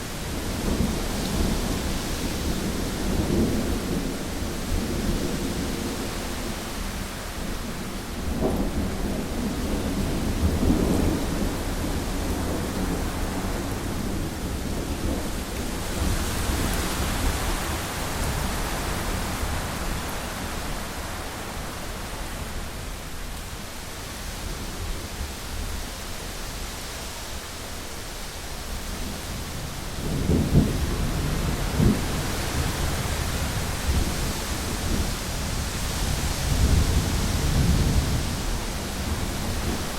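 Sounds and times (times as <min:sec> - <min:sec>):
heavy rain on window: 0:00.0 - 0:39.9
rolling thunder: 0:29.0 - 0:39.9.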